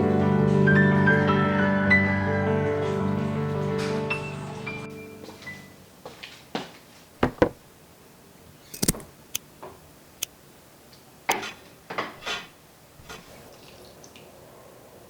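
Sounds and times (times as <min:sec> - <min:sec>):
objects knocking and clicking: 0:07.2 - 0:07.6, 0:08.7 - 0:09.1.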